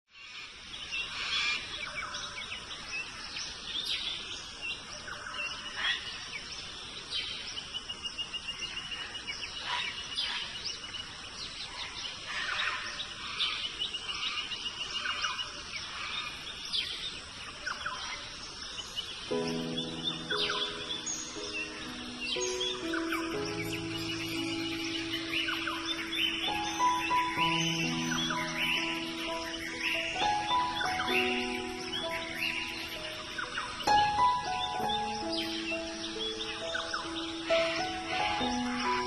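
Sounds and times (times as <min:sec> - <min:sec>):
birds chirping and singing: 0:00.1 - 0:39.0
steady hiss: 0:00.2 - 0:39.0
bird trilling: 0:19.5 - 0:39.0.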